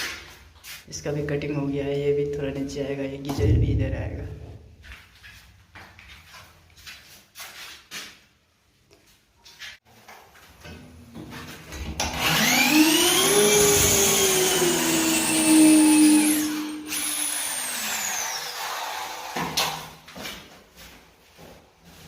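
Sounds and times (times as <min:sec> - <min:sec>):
power tool electric motor running: 0:12.2 - 0:19.3.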